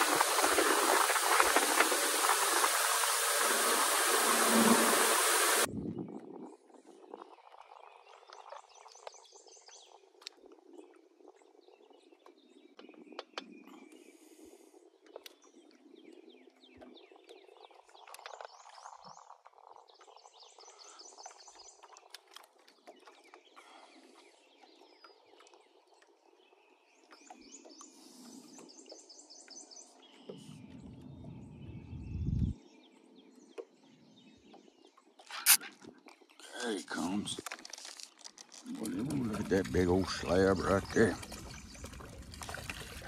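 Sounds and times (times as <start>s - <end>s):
birds singing: 23.0s - 35.3s, 38.6s - 43.0s
low rumble: 30.4s - 32.6s.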